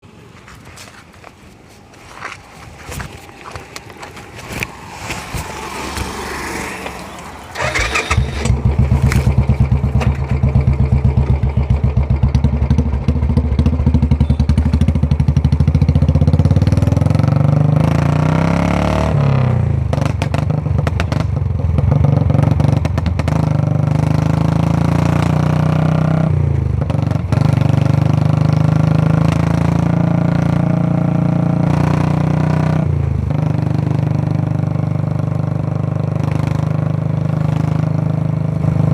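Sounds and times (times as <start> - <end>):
motorcycle engine starting and idling: 3.4 - 17.7.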